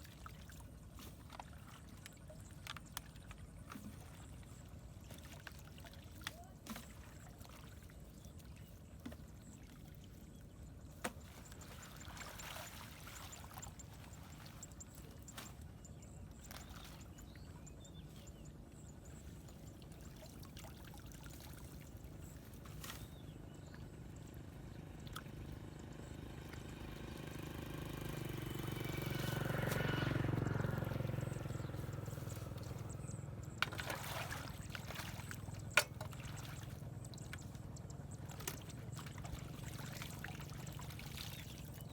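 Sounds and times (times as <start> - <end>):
water pouring and trickling: 38.2 - 41.9.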